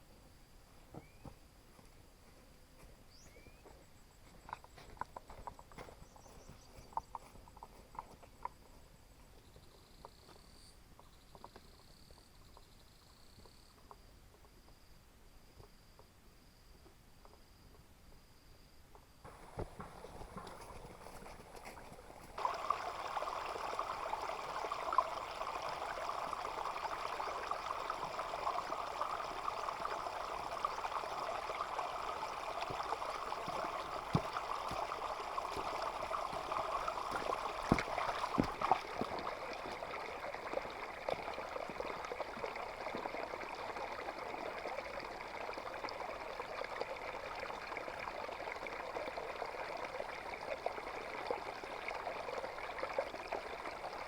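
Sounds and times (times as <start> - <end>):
water pouring: 19.3 - 54.0.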